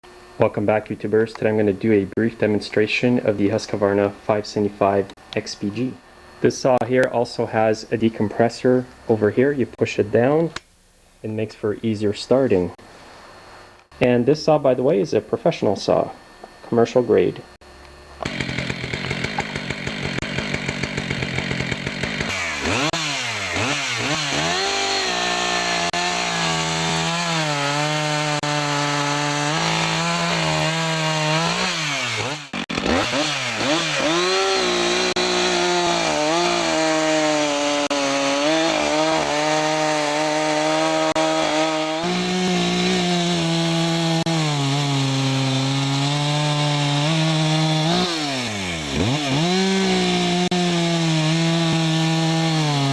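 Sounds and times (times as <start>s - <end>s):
chainsaw idling and revving: 18.2s - 52.9s.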